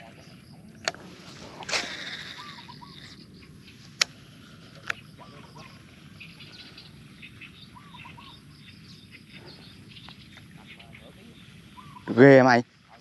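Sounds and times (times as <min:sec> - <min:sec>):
insects chirring: 0:00.0 - 0:13.0
small birds calling: 0:00.0 - 0:13.0
sharp clicks: 0:00.7 - 0:02.3, 0:04.0 - 0:05.0.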